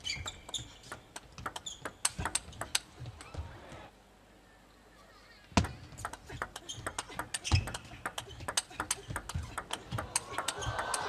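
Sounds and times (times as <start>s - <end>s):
table tennis ball clicking: 0.2s - 2.9s, 5.6s - 11.0s.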